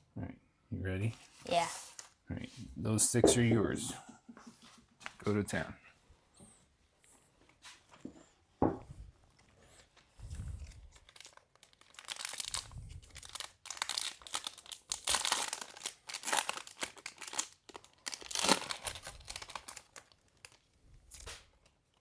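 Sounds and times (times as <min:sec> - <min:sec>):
plastic wrapper crinkling and tearing: 0:10.2 - 0:22.0.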